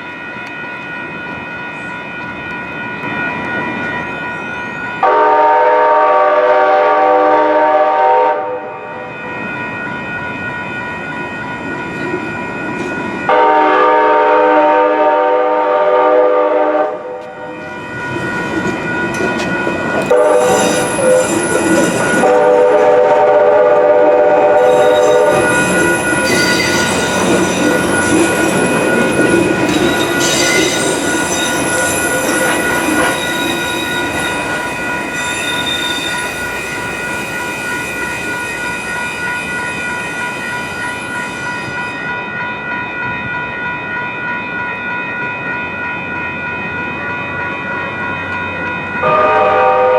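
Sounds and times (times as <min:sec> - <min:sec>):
crossing warning bell ringing: 0:00.0 - 0:49.9
train horn blasts: 0:05.0 - 0:09.0, 0:13.3 - 0:17.5, 0:20.1 - 0:21.2, 0:22.2 - 0:25.4, 0:49.0 - 0:49.9
train wheels rumbling: 0:09.8 - 0:43.9
wheel squeal: 0:24.6 - 0:37.4.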